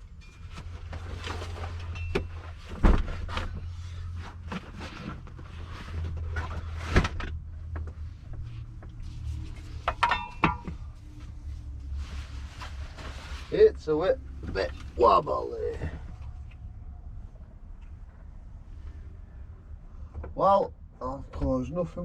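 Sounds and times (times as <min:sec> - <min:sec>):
low steady hum: 0:00.0 - 0:22.0
knocks and rattles of objects handled: 0:00.1 - 0:11.4.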